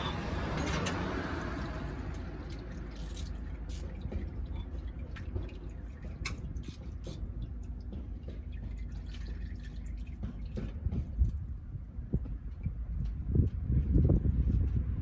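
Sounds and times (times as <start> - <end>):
oil dripping into a pan: 0.0 - 11.4
steady low rumble: 4.3 - 15.0.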